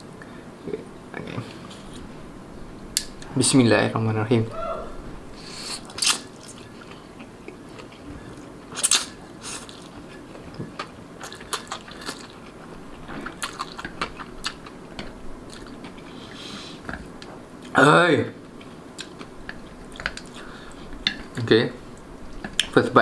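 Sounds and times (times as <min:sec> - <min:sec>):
wet chewing clicks: 0:13.2 - 0:16.2, 0:18.5 - 0:21.4.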